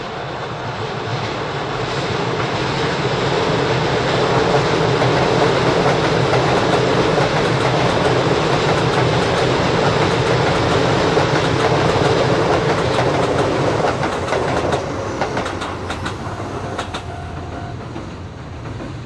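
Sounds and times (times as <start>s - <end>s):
train wheels clattering over rail joints: 4.3s - 19.0s.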